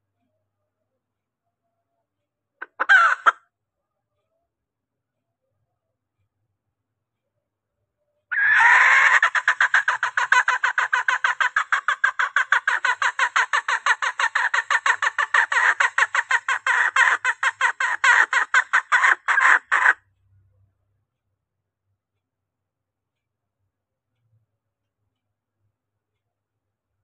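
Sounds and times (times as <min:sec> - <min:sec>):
junglefowl hen clucking: 0:02.6 - 0:03.4, 0:08.3 - 0:20.0.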